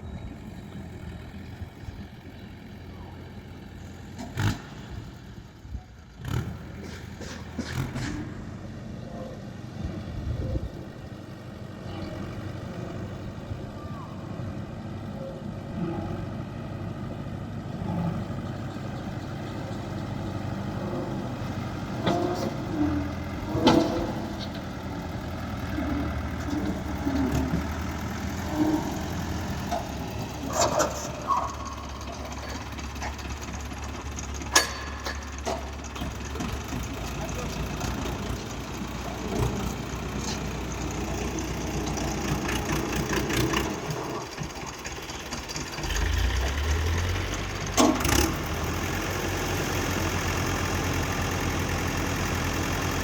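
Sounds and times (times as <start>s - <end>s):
tractor diesel engine idling: 0.0s - 53.0s
knocks and clanks: 6.8s - 8.4s, 23.5s - 24.7s, 30.5s - 37.0s.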